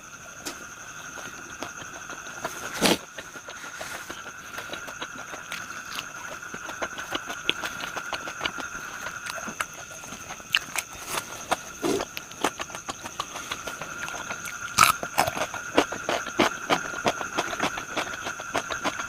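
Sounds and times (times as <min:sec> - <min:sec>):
crunchy chewing: 0:00.1 - 0:19.0.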